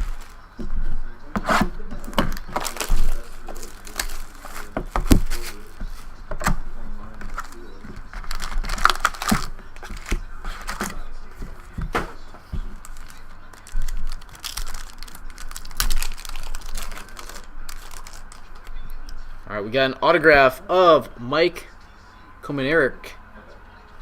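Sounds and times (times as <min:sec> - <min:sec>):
trading cards handled on a table: 0:07.2 - 0:18.7.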